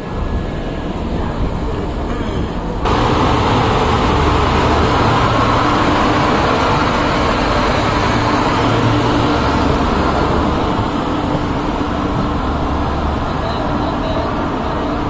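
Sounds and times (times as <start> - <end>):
train rolling past: 0.0 - 15.0
low hum: 2.7 - 15.0.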